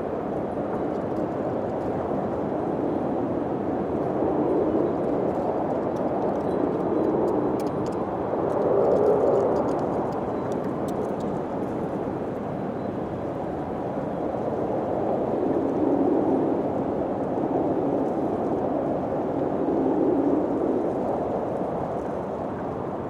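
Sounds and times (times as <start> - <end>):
wind blowing: 0.0 - 23.0.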